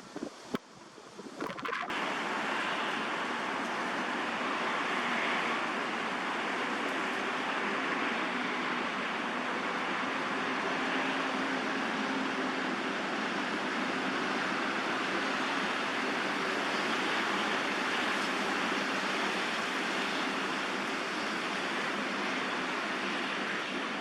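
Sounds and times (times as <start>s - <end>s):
steady rushing noise: 0.0s - 3.6s.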